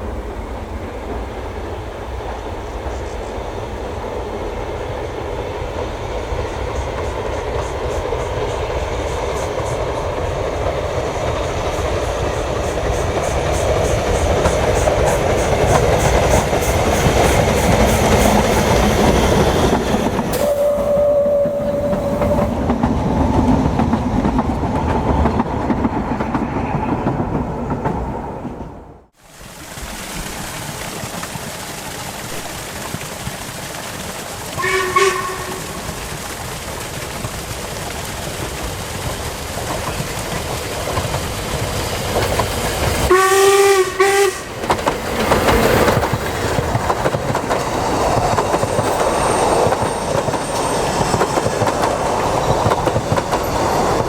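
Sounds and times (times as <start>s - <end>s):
steam train passing: 0.0s - 54.0s
steam train whistle: 20.3s - 22.6s, 34.6s - 36.0s, 43.1s - 44.6s.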